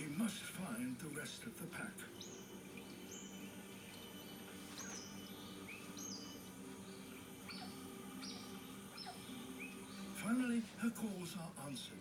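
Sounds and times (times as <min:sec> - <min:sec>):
steady low hum: 0:00.0 - 0:12.0
otter chirping through tv speaker: 0:04.2 - 0:10.3.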